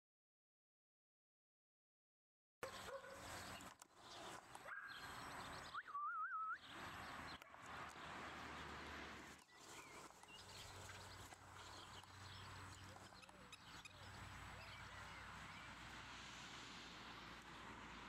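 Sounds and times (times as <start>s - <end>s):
wavering bird call: 4.7s - 6.7s
steady outdoor hiss: 6.6s - 18.0s.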